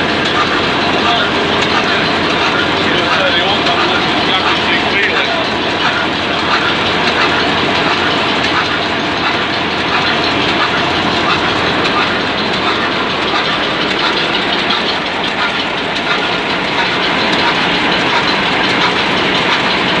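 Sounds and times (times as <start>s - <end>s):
stationary diesel engine clatter: 0.0s - 20.0s.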